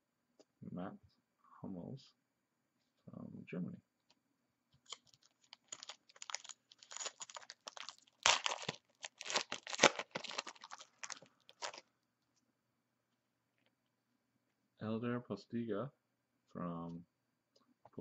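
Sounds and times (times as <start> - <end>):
foil wrapper tearing and crinkling: 4.8 - 11.8.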